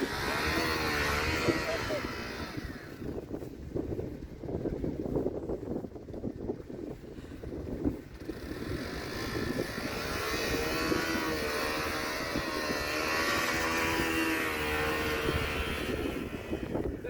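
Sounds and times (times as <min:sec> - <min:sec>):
motorcycle engine at high revs: 0:00.0 - 0:06.7, 0:07.4 - 0:17.0.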